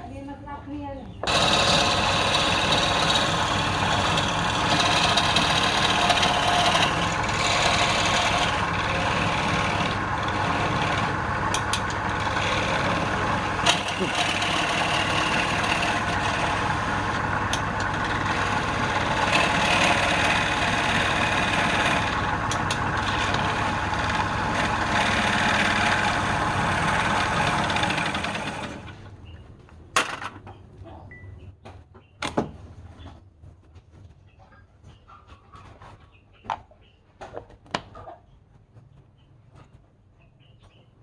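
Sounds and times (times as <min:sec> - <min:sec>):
wood lathe running: 0:01.2 - 0:29.0.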